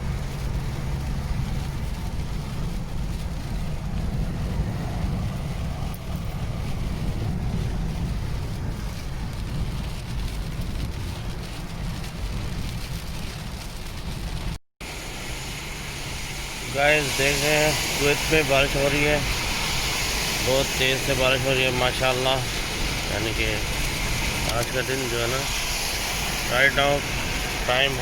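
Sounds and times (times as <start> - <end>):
rain hiss: 0.0 - 28.0
tyres rumbling on wet road: 0.0 - 28.0
wind buffeting microphone: 0.0 - 28.0.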